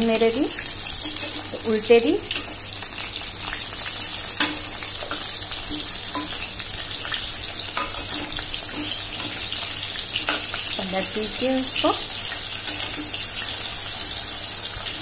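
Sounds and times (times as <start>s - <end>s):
food sizzling in hot oil: 0.0s - 15.0s
metal spatula scraping pan: 0.8s - 1.6s, 7.6s - 10.8s, 12.4s - 14.2s.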